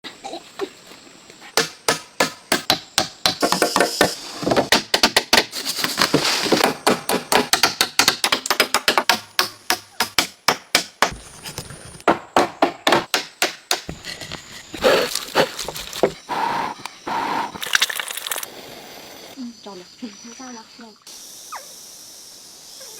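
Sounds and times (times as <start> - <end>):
wood being chopped: 1.6 - 16.2.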